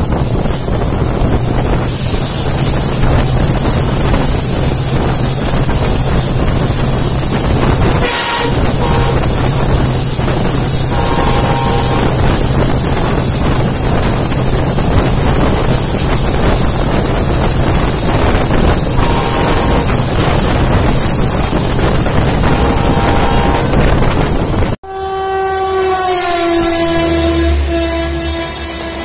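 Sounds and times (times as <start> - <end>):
wind buffeting microphone: 0.0 - 24.8
trains passing at speed: 0.0 - 29.0
train horn: 7.2 - 15.9, 17.7 - 29.0.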